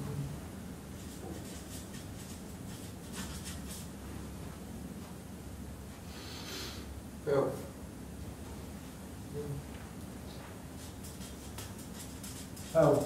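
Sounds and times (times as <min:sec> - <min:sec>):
low room hum: 0:00.0 - 0:13.0
marker pen writing on paper: 0:01.0 - 0:03.9, 0:10.8 - 0:13.0.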